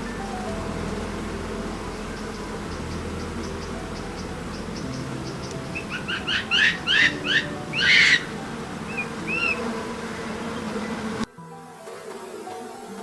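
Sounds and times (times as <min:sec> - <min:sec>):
background hum: 0:00.0 - 0:11.3
bird-like animal calls: 0:01.9 - 0:09.7.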